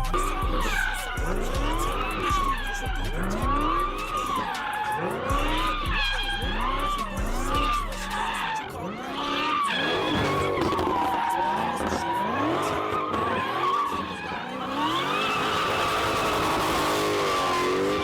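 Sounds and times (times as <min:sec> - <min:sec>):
music: 0:00.0 - 0:11.3
car engine revving: 0:00.0 - 0:18.0
tires squealing: 0:00.0 - 0:18.0.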